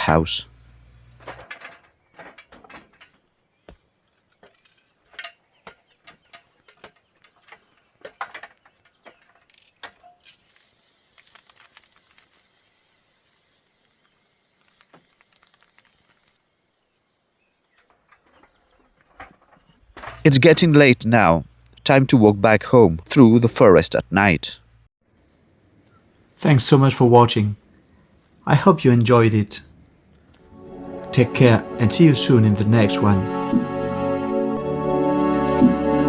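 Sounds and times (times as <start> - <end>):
faint steady hiss: 0.0 - 1.5, 24.5 - 33.2.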